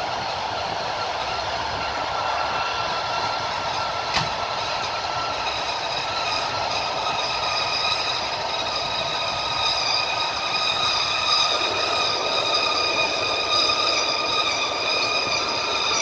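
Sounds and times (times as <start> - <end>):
train running on rails: 0.0 - 16.0
sharp click: 4.1 - 4.4.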